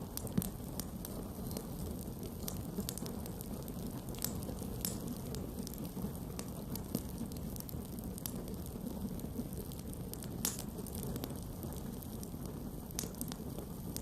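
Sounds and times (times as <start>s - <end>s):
burning wood crackling and popping: 0.0s - 14.0s
campfire flames rumbling: 0.0s - 14.0s.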